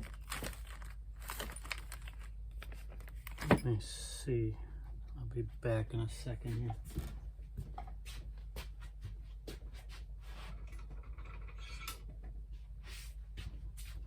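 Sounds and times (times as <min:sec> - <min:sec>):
small tools clicking and rustling: 0:00.0 - 0:03.7
steady low hum: 0:00.0 - 0:14.0.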